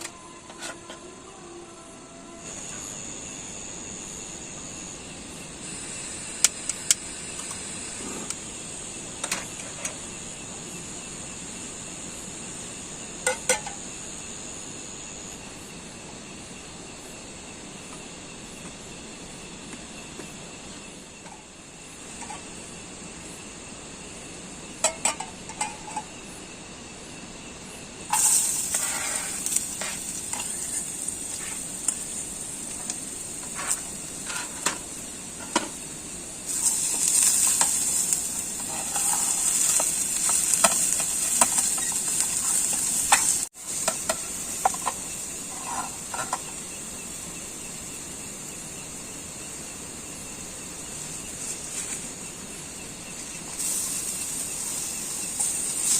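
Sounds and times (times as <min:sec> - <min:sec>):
food sizzling in a pan: 0:02.5 - 0:14.6, 0:28.1 - 0:55.9.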